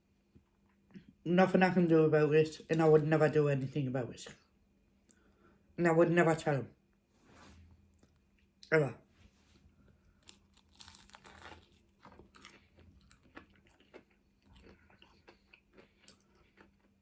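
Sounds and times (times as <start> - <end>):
person chewing food: 9.8 - 17.0.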